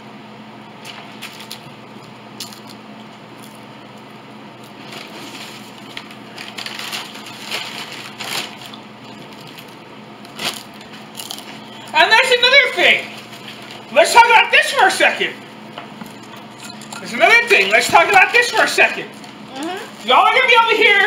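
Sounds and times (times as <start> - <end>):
crunchy food chewing: 0.9 - 11.9.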